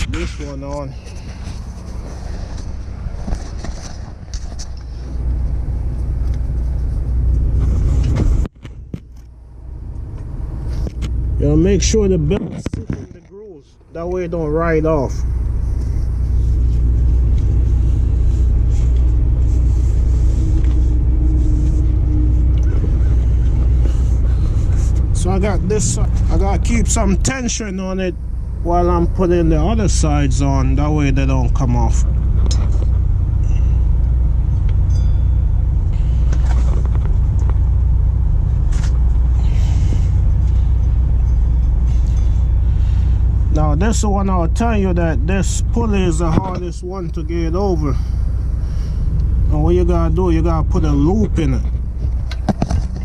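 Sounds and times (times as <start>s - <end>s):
engine idling: 0.0s - 53.0s
faint steady hum: 0.0s - 53.0s
short rustles: 15.4s - 26.4s.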